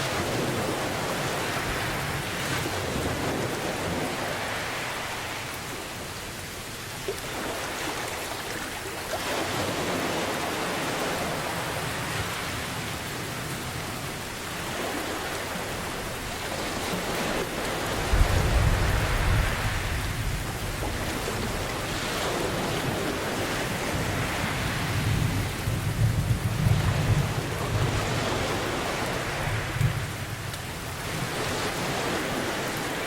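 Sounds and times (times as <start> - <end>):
heavy rain: 0.0 - 33.0
thunder rumbling: 18.0 - 23.2, 23.8 - 30.5.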